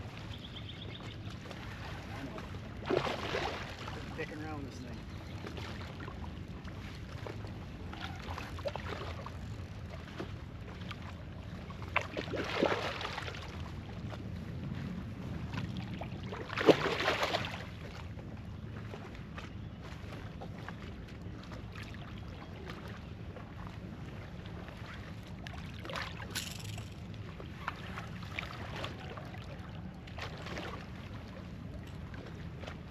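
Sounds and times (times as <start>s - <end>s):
water lapping around kayak: 0.0s - 32.9s
water splashing: 1.7s - 4.8s.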